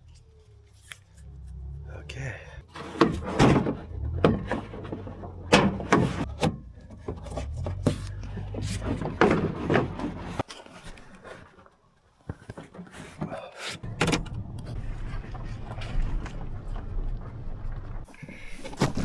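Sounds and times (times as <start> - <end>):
cardboard tube knocking and scraping: 2.7 - 10.4.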